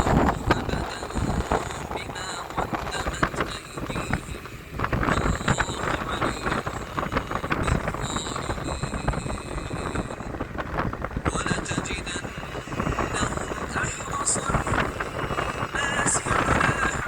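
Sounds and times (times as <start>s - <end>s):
high whine: 0.0s - 17.0s
road vehicle moving: 0.0s - 17.0s
wind buffeting microphone: 0.0s - 17.0s.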